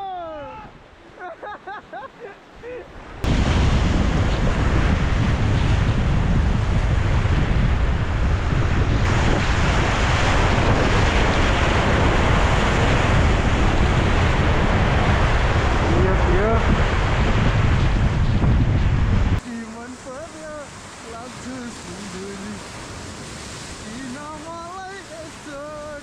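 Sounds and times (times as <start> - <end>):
wind buffeting microphone: 2.2 - 26.0
rushing river rapids: 19.4 - 26.0.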